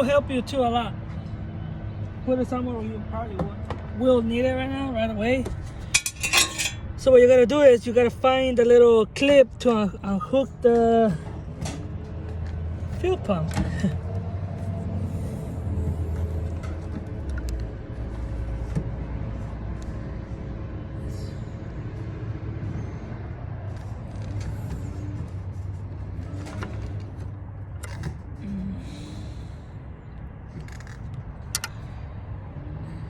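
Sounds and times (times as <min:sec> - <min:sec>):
steady low hum: 0:04.4 - 0:08.4
clicks and knocks of tools: 0:05.4 - 0:06.9.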